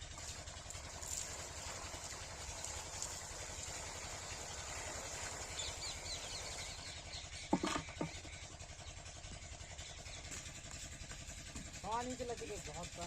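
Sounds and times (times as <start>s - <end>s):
diesel pump engine running: 0.0s - 13.0s.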